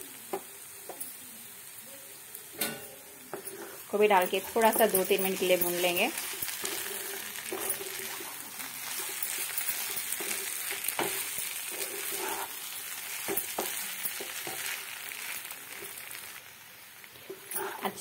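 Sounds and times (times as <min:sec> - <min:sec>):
rice sizzling in oil: 0:00.0 - 0:18.0
spatula scraping and tapping pan: 0:02.6 - 0:12.6, 0:13.2 - 0:14.8.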